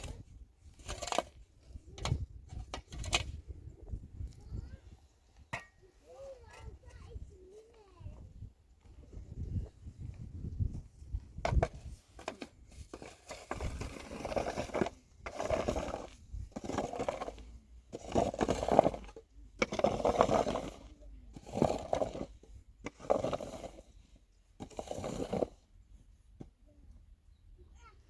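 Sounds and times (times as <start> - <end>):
scraping strokes: 0.0 - 1.4, 11.4 - 25.7.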